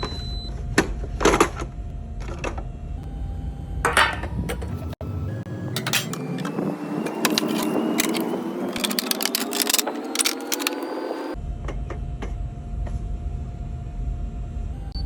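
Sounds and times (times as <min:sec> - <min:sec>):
coffee machine running: 0:05.7 - 0:11.4
sharp clicks and rattles: 0:05.8 - 0:11.0.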